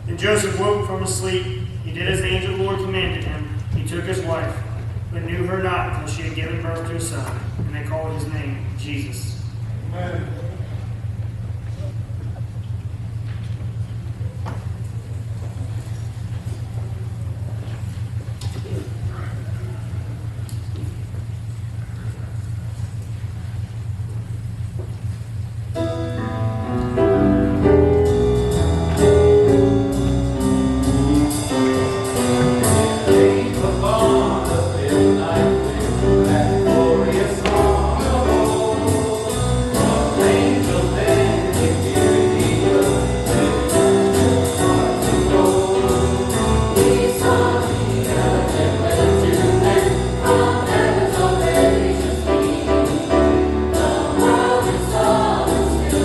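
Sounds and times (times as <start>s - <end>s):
instrumental accompaniment: 25.8s - 56.0s
choir singing jazzy song: 26.9s - 56.0s.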